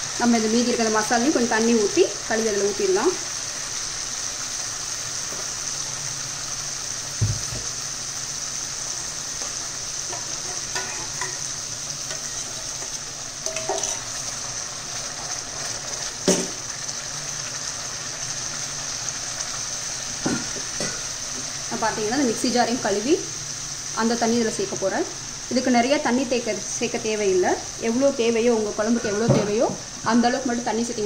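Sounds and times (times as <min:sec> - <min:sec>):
paste sizzling in hot oil: 0:00.0 - 0:31.0
utensil knocking on pan: 0:13.4 - 0:14.0.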